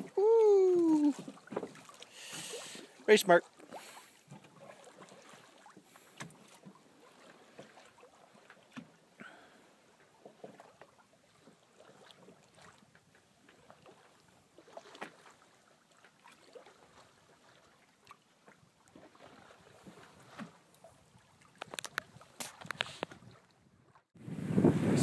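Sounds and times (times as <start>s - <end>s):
hull knocks and splashes: 1.1s - 2.6s, 3.5s - 9.0s, 13.5s - 20.7s.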